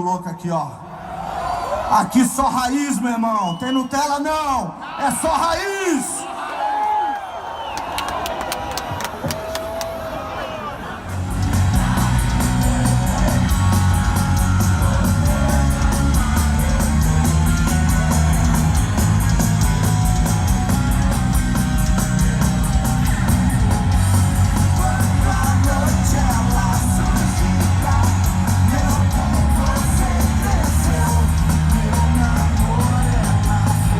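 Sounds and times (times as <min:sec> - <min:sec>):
distorted electric guitars: 0:11.1 - 0:33.9
heavy rock band playing live: 0:11.1 - 0:33.9
fast drums: 0:11.2 - 0:33.9.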